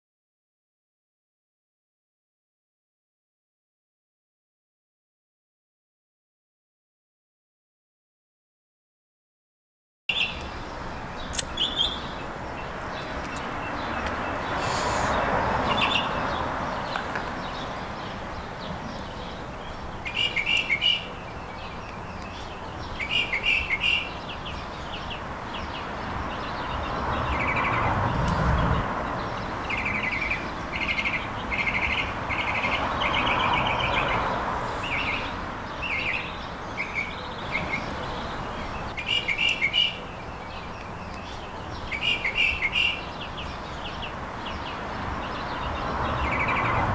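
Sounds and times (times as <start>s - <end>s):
small birds chirping trills: 10.1s - 46.9s.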